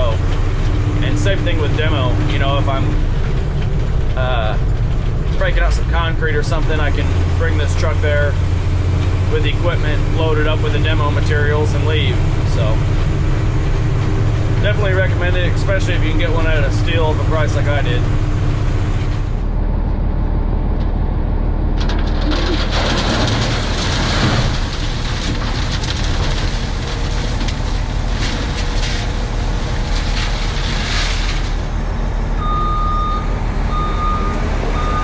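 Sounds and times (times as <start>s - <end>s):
truck diesel engine running: 0.0s - 35.0s
reversing alarm beeping: 32.4s - 35.0s.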